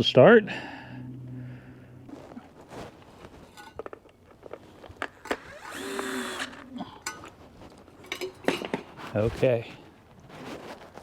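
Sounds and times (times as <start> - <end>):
power drill driving a bolt: 5.3 - 6.7.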